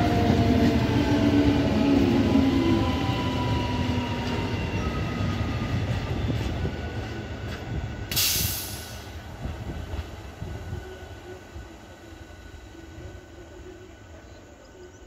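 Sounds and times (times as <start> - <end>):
train rumbling past: 0.0 - 15.0
short hiss: 8.1 - 9.1.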